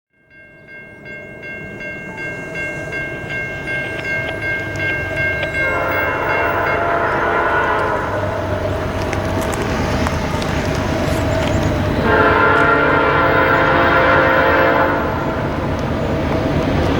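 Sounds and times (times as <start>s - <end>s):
train rumble: 0.3s - 16.9s
locomotive horn: 2.8s - 16.3s.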